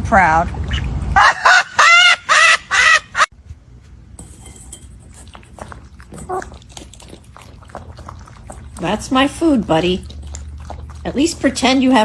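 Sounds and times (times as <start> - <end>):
bird calling harshly: 0.7 - 3.3.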